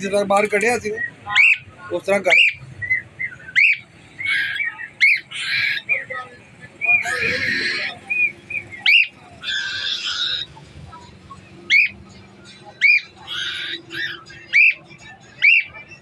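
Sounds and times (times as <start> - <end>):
parrot harsh squawks: 3.5 - 5.9, 7.0 - 8.0, 8.8 - 10.6, 11.7 - 12.0, 12.8 - 14.8
parrot chirped whistles: 14.0 - 14.8.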